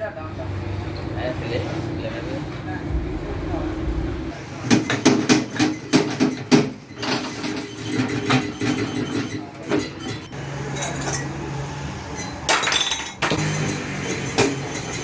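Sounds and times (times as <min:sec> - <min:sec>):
short low hum: 0:02.9 - 0:04.4.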